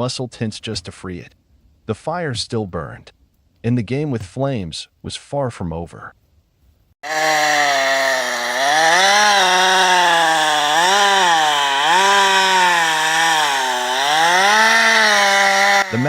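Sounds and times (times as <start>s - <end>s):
chainsaw cutting wood: 7.0s - 16.0s.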